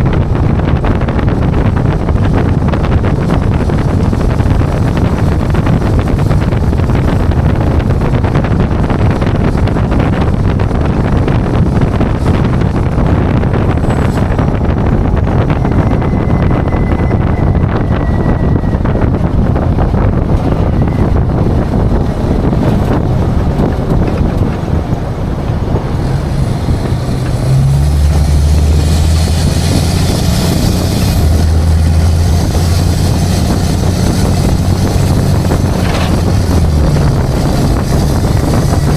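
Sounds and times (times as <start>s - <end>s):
deep engine drone: 0.0s - 38.9s
truck engine and road noise: 0.0s - 38.9s
wind buffeting microphone: 0.0s - 38.9s.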